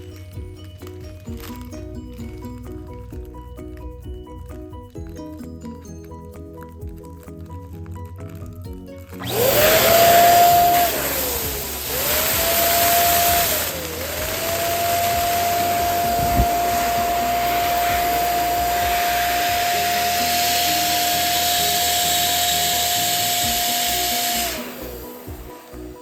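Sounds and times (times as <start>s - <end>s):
electric balloon pump running: 9.1s - 26.0s.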